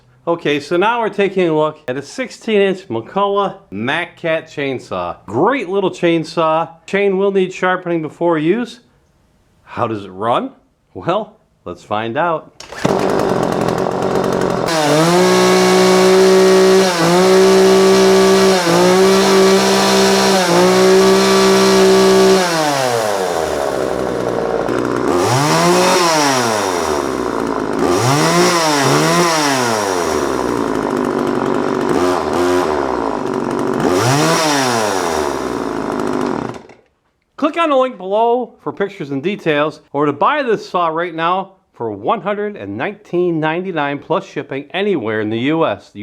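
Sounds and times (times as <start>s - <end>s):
chainsaw revving and idling: 12.6s - 36.8s.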